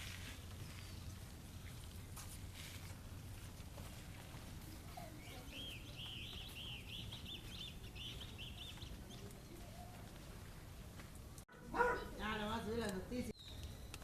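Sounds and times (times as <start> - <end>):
bird chirping: 5.0 - 9.9, 13.3 - 14.0.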